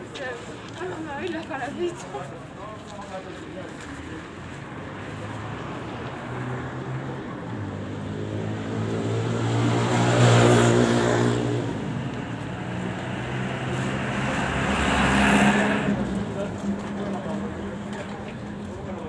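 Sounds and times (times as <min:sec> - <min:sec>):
street noise: 0:00.0 - 0:19.0
vehicle engine passing: 0:04.8 - 0:19.0.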